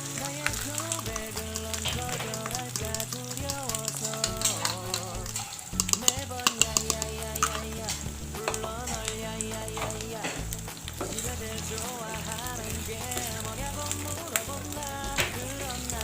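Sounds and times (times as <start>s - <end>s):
background music: 0.0s - 16.0s
egg sizzling in hot oil: 0.0s - 16.0s
spatula clacking against pan: 0.4s - 7.8s
spatula scraping a pan: 3.8s - 8.9s.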